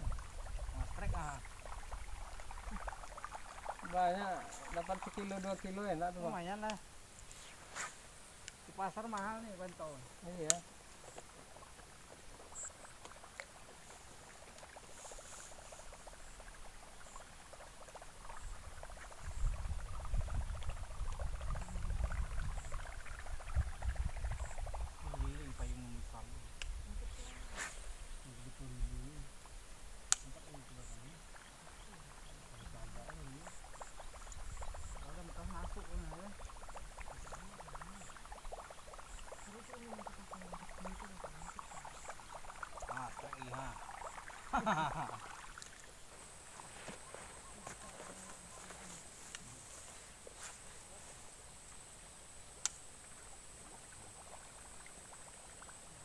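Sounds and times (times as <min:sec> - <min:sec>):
frogs clicking: 0:00.0 - 0:07.1, 0:08.2 - 0:26.8, 0:28.0 - 0:50.8, 0:51.4 - 0:56.0
low wavering frog croaks: 0:11.2 - 0:27.5, 0:28.3 - 0:49.4, 0:51.5 - 0:56.0.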